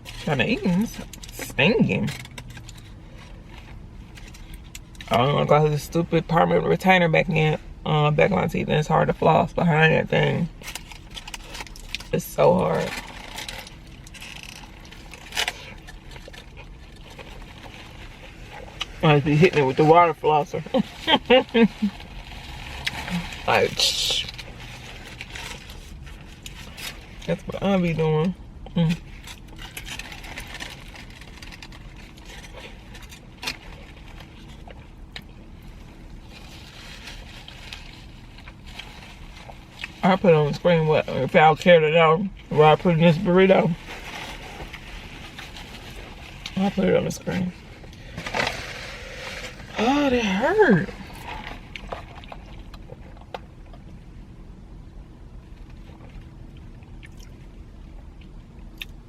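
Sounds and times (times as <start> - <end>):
low background rumble: 0.0 - 59.0
chewing food: 55.7 - 59.0.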